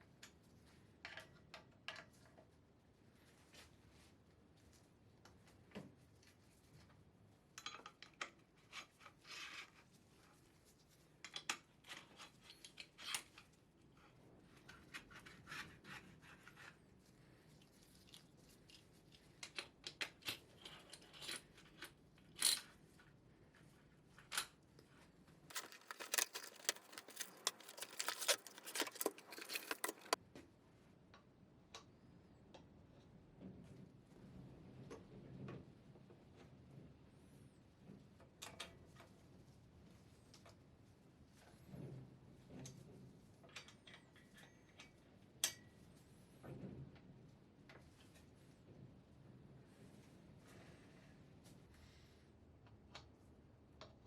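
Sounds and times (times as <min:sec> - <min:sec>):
rapid scraping: 0:25.5 - 0:30.2.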